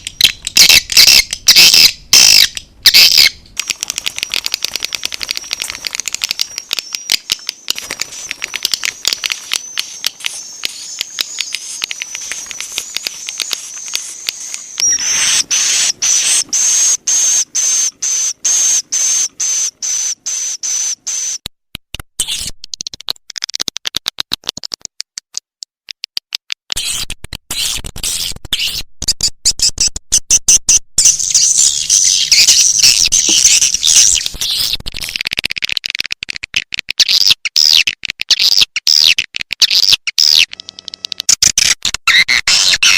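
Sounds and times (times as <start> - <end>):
dense bird twittering: 0.0 - 21.4, 31.0 - 34.8
swiftlet chirps and clicks: 0.0 - 21.5
long high bird trill: 8.0 - 21.4.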